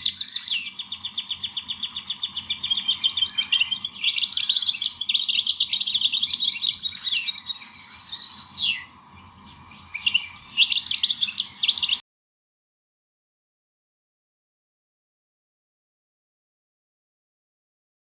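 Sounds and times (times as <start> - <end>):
songbirds chirping and trilling: 0.0 - 12.0.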